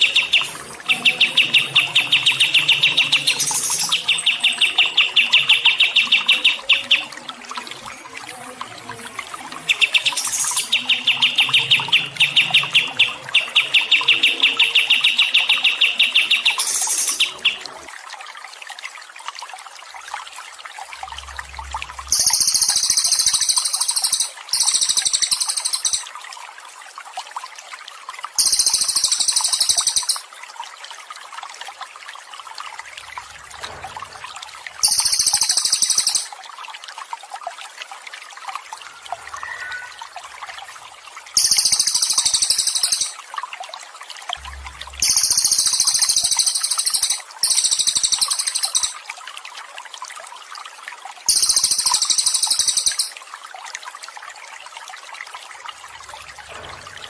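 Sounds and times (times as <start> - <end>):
high hissing bird chatter: 0.0 - 7.0, 9.7 - 17.6, 22.1 - 26.1, 28.4 - 30.2, 34.8 - 36.3, 41.4 - 43.2, 45.0 - 49.0, 51.3 - 53.1
faint water trickling: 0.0 - 57.0
songbird trilling: 22.1 - 26.1, 28.4 - 30.2, 34.8 - 36.3, 41.4 - 43.2, 45.0 - 49.0, 51.3 - 53.2.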